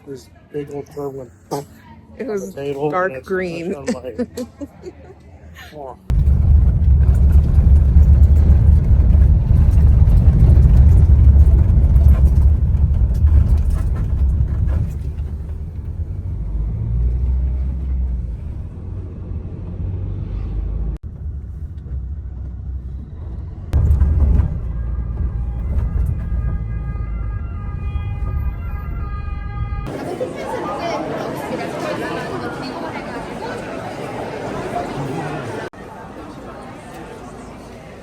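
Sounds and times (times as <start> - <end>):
road traffic rumble: 6.1 - 30.2.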